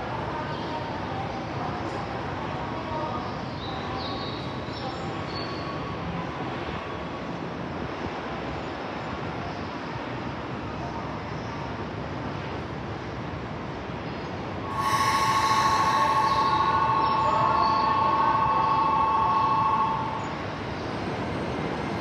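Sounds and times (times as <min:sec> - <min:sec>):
electric train running: 0:14.7 - 0:22.0.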